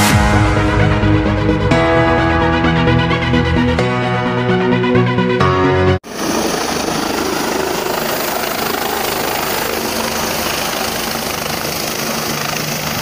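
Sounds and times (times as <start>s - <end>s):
music: 0.0s - 6.0s
helicopter rotor and engine: 6.0s - 13.0s.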